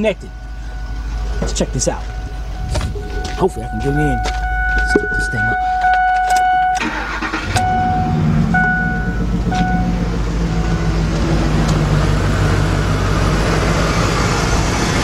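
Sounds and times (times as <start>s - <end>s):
dash warning chime: 0.0s - 11.0s
misfiring engine idling: 0.0s - 14.8s
engine cranking and starting: 5.8s - 10.5s.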